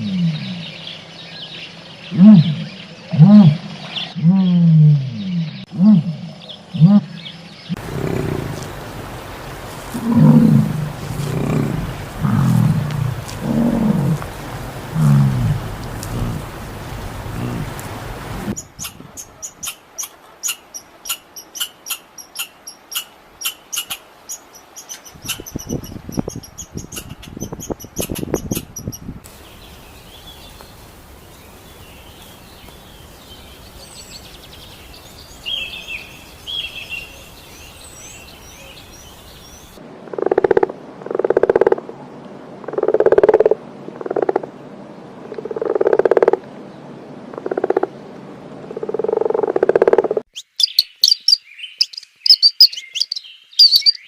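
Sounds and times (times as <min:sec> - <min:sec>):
steady hiss: 0:07.7 - 0:26.8, 0:27.6 - 0:40.0
rapid high chirping calls: 0:18.6 - 0:29.6, 0:50.3 - 0:54.0
faint bird-like chirps: 0:50.3 - 0:54.0.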